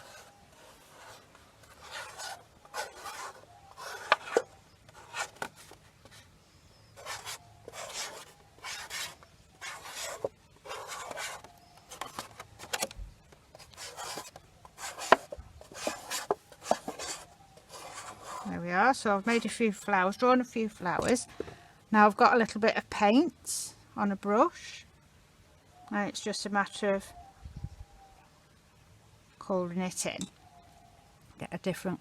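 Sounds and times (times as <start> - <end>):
pen scratching on plastic bottle: 0.0 - 6.2, 7.0 - 12.8, 13.5 - 18.5.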